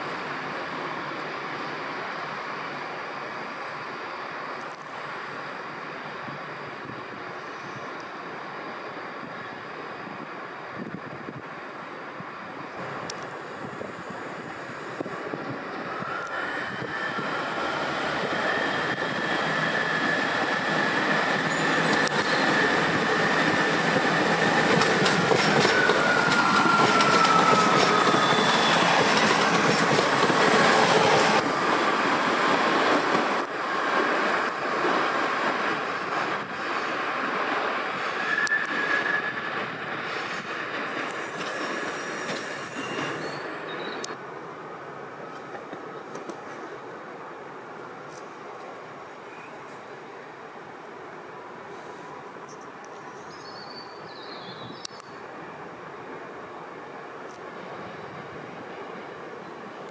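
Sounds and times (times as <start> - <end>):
wheels squealing on rails: 0.0 - 44.2
diesel train running slowly: 0.0 - 59.9.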